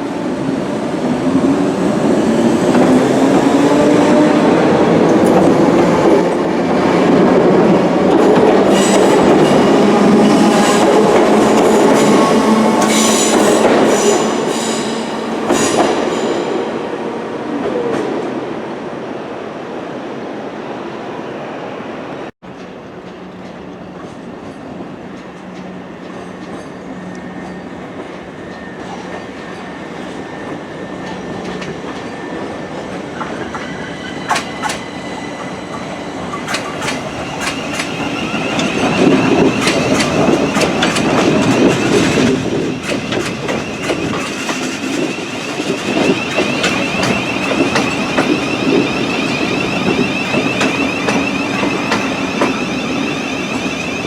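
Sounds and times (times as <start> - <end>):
train passing: 0.0 - 54.0
train wheels clicking over rail joints: 33.2 - 54.0.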